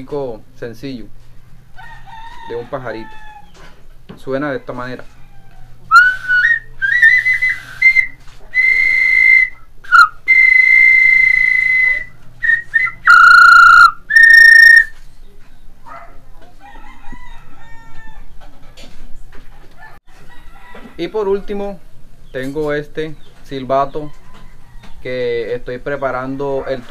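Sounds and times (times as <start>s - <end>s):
clay bird whistle toots: 5.9s - 14.9s.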